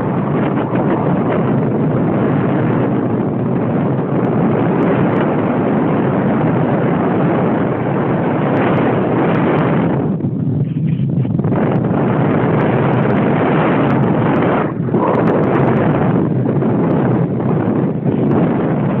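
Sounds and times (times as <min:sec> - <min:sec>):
model airplane motor and wind: 0:00.0 - 0:19.0.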